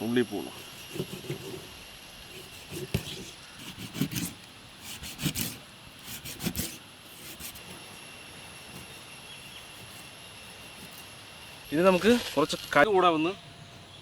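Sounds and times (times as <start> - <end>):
knife scraping fish: 0.6 - 12.7.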